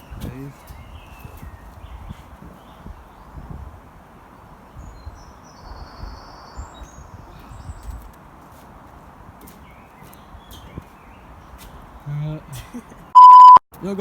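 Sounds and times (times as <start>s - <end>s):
bird chirping: 4.6s - 8.0s, 9.5s - 12.1s.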